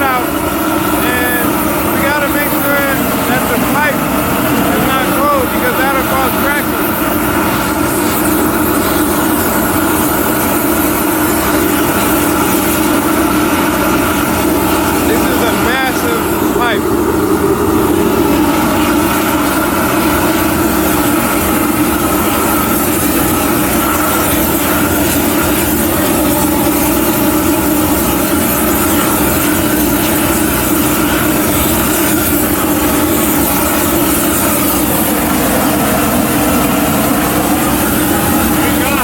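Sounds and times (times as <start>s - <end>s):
torches roaring: 0.0s - 39.0s.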